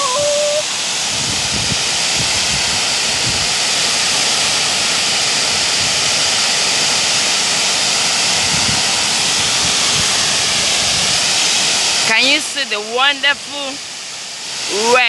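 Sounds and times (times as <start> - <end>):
fountain water jets rushing: 0.0 - 15.0.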